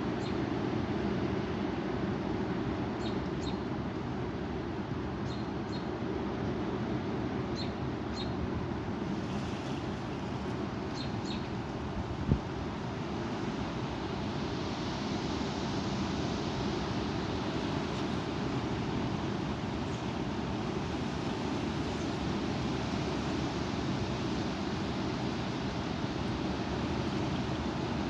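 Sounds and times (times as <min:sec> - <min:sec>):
bird chirping: 0:03.0 - 0:03.6, 0:07.6 - 0:08.4, 0:10.9 - 0:11.5.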